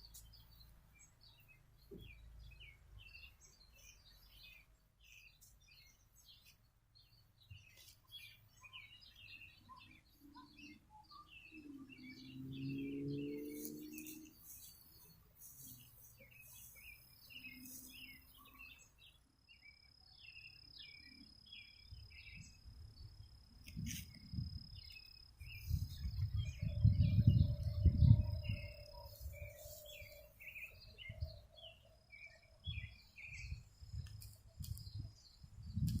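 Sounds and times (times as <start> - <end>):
small birds chirping: 0.0 - 36.0
wind rumbling on microphone: 21.9 - 36.0.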